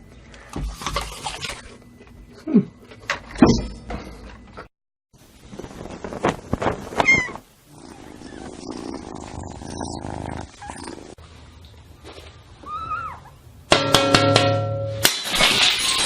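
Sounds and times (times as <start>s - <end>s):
cat meowing: 7.0s - 7.4s.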